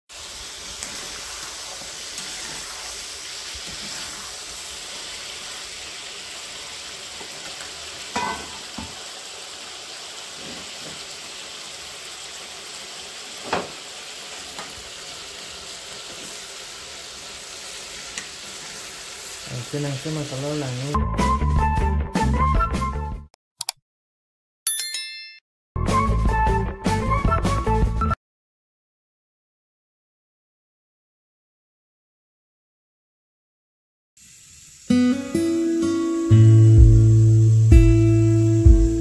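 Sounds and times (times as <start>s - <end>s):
meat sizzling in hot oil: 0.1s - 21.0s, 34.2s - 39.0s
metal spatula scraping pan: 0.8s - 4.4s.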